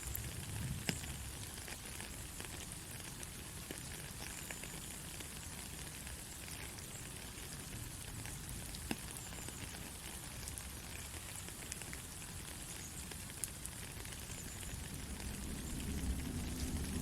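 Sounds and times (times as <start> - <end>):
soft rain falling: 0.0 - 17.0.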